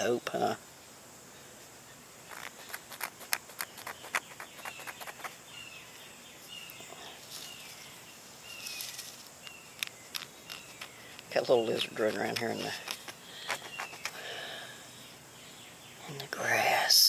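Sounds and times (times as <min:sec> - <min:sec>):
bird chirping: 0:01.3 - 0:16.9
sharp clicks and taps: 0:02.3 - 0:05.3, 0:09.4 - 0:14.2.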